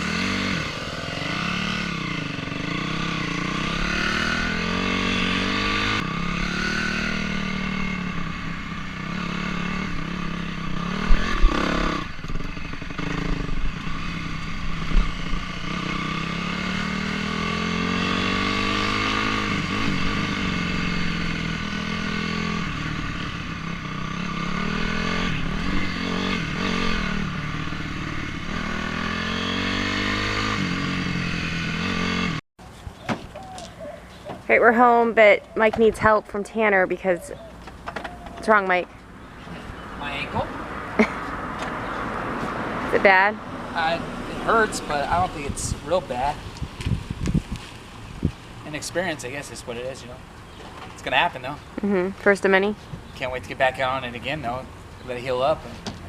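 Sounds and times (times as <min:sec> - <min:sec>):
dirt bike engine revving: 0:00.0 - 0:32.4, 0:39.9 - 0:46.4.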